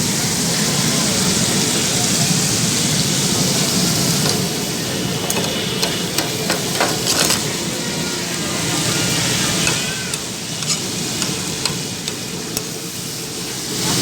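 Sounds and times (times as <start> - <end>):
liver sizzling on a griddle: 0.0 - 14.0
metal spatula knocking on griddle: 4.2 - 7.6, 9.6 - 12.7.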